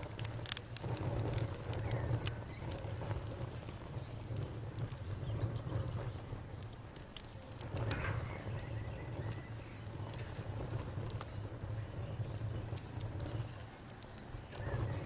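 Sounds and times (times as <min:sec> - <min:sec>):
wood fire crackling and popping: 0:00.0 - 0:15.0
cricket chirping: 0:00.1 - 0:15.0.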